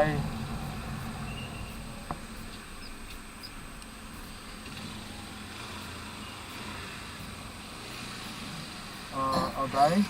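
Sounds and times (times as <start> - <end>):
motorcycle engine running: 0.0 - 5.9
wind and road noise: 0.0 - 10.0.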